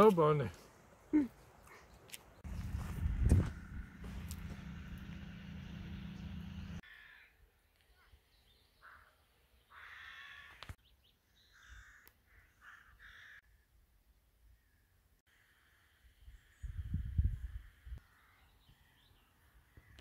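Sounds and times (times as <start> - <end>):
low rumble: 2.4 - 6.8
birds calling: 3.7 - 13.5.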